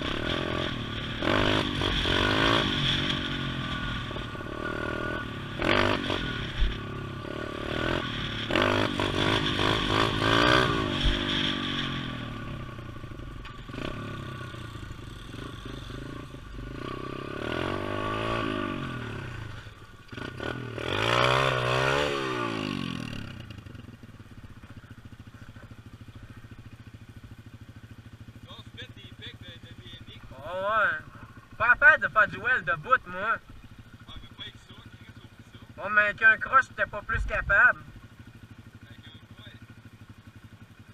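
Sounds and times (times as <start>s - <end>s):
small engine revving: 0.0s - 23.9s.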